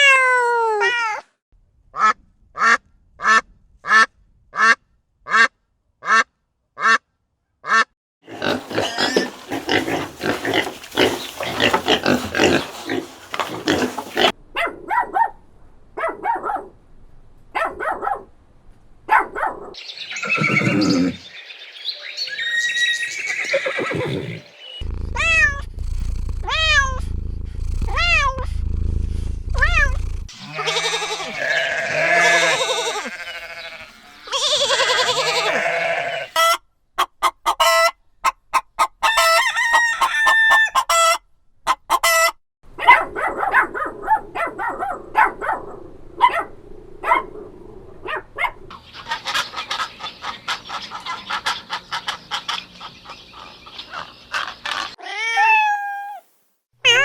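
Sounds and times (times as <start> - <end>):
farm animals calling: 7.6 - 14.4, 19.7 - 26.9, 29.6 - 42.3, 48.7 - 56.0
goat-like bleats: 29.6 - 36.4.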